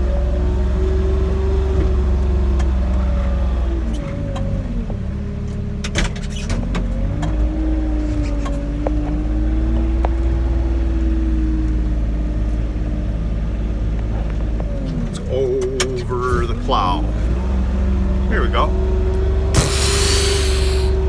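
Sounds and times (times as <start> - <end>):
diesel engine rumbling under load: 6.5 - 21.0
engine whine: 19.4 - 21.0.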